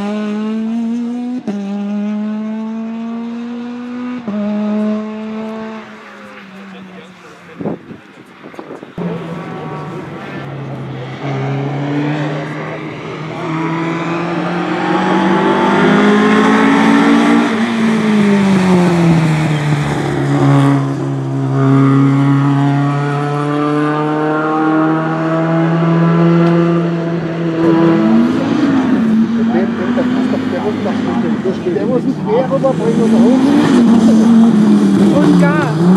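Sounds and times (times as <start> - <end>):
rally car engine running hard: 8.6 - 35.9.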